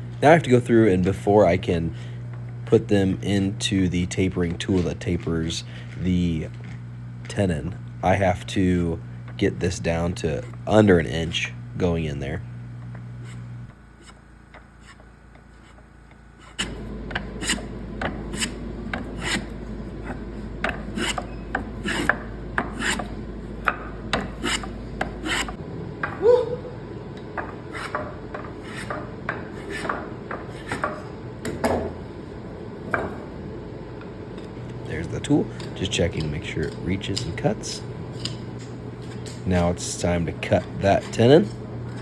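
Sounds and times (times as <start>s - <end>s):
hand tool rasping wood: 13.2s - 25.6s, 27.5s - 31.0s.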